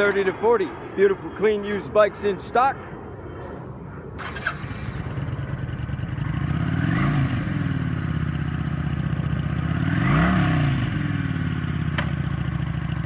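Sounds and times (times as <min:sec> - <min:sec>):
motorcycle engine idling and revving: 0:04.2 - 0:13.0.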